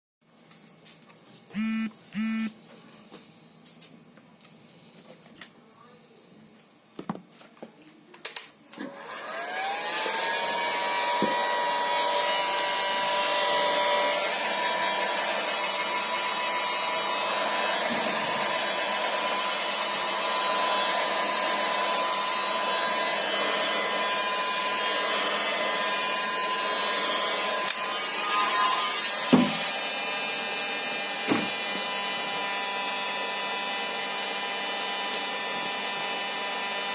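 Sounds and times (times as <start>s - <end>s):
power tool whining: 1.6s - 2.5s, 8.8s - 36.9s.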